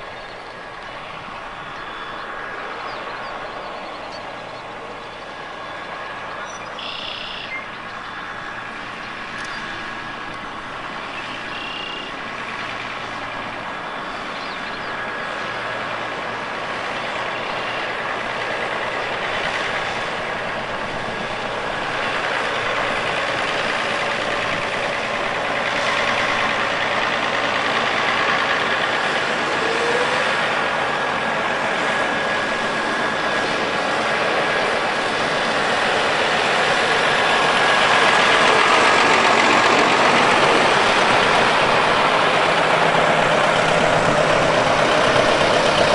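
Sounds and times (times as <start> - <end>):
tractor engines running: 0.0 - 45.9.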